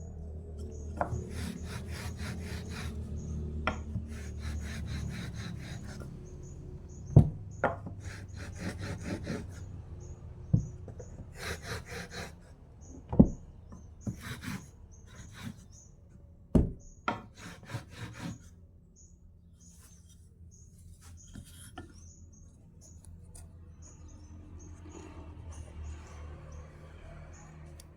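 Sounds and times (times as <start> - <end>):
rasping on wood: 0.8 - 7.0, 7.8 - 12.5, 14.1 - 15.7, 17.2 - 18.5
sharp knocks on wood: 7.1 - 8.0, 10.5 - 11.2, 13.1 - 13.4, 16.5 - 17.3.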